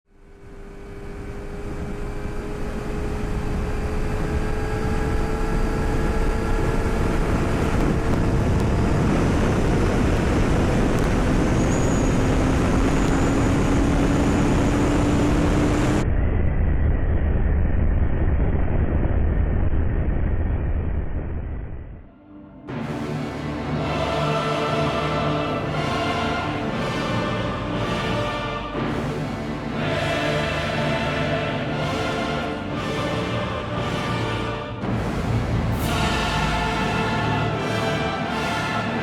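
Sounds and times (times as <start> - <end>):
motorcycle engine at speed: 0.1 - 22.1
wind noise rushing: 3.2 - 16.8.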